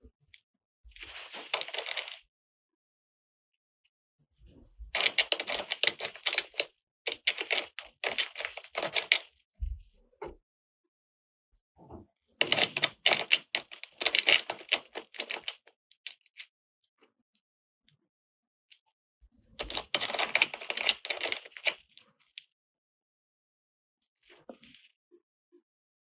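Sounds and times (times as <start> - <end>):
plastic toy pieces clicking: 5.0 - 9.3, 12.4 - 15.6, 19.6 - 21.8.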